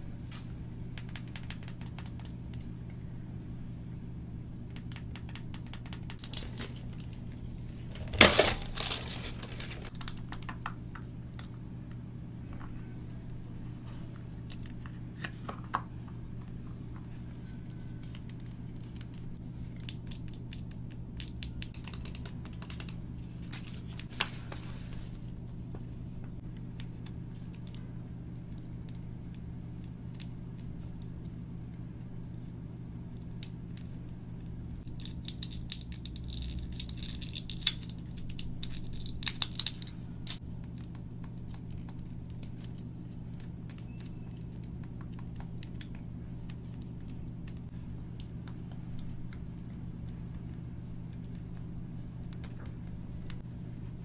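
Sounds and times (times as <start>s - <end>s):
steady low hum: 0.0s - 54.0s
toy packaging clicks and crinkles: 7.9s - 10.3s, 34.9s - 40.9s.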